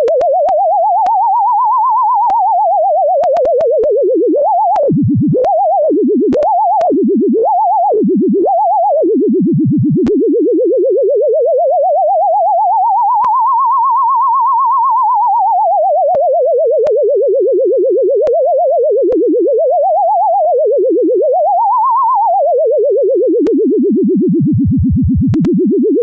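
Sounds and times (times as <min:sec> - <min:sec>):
faint clicks: 0:00.0 - 0:01.2, 0:03.2 - 0:03.9, 0:04.7 - 0:05.6, 0:06.3 - 0:07.0, 0:25.3 - 0:25.6
wobbling pure tone: 0:00.0 - 0:26.0.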